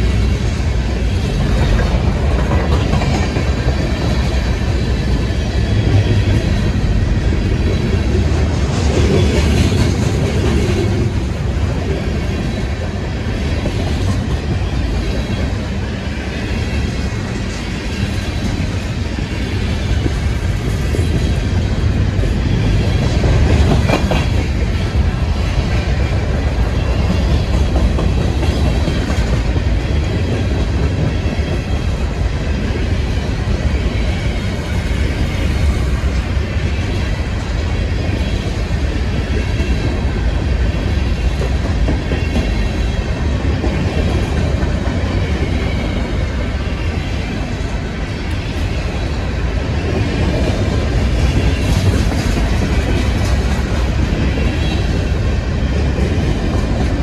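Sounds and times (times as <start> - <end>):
train wheels rumbling on rails: 0.0 - 57.0
train knocks: 1.1 - 15.6, 19.8 - 32.0.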